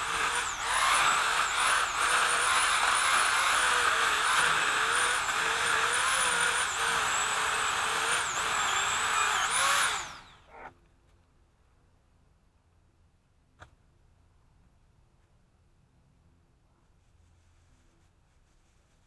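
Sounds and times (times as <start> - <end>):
chainsaw running: 0.0 - 10.4.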